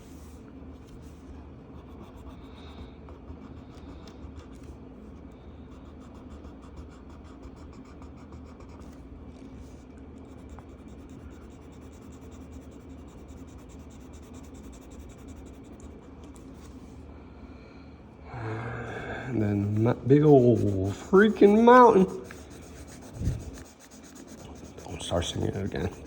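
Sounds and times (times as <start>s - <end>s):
steady low hum: 0.0s - 26.0s
marker scribbling on paper: 10.3s - 16.0s, 19.3s - 26.0s.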